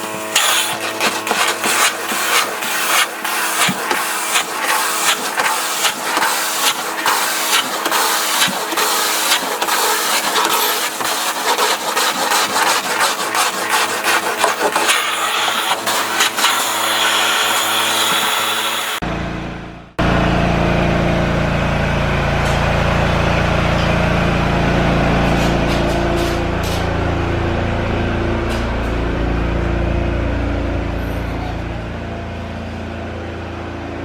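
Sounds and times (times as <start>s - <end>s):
suction machine motor hum: 0.0s - 19.1s.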